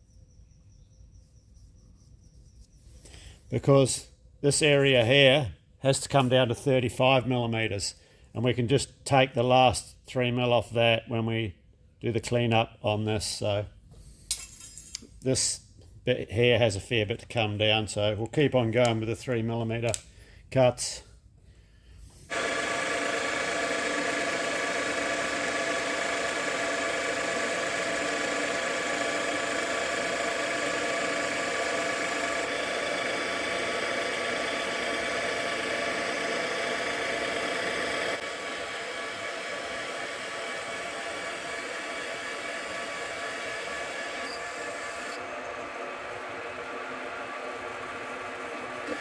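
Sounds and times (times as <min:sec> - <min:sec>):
lathe machine whine: 0:22.1 - 0:49.0.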